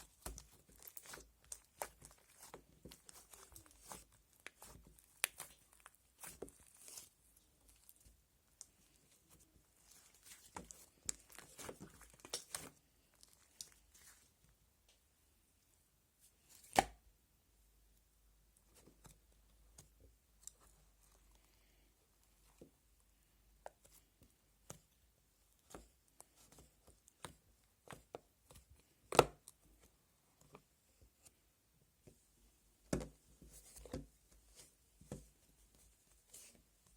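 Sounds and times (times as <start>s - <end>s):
slime squished by hand: 0.0s - 14.3s.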